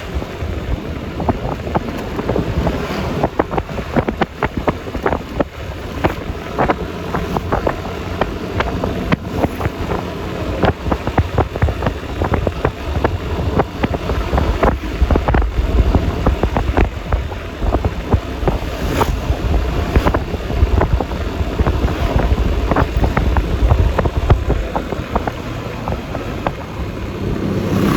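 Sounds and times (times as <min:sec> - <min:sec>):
scooter engine and road rumble: 0:00.0 - 0:27.9
wind buffeting microphone: 0:00.0 - 0:27.9.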